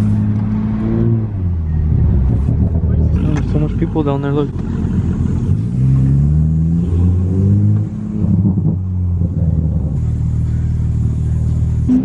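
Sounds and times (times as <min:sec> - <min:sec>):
car engine pulling: 0:00.0 - 0:12.0.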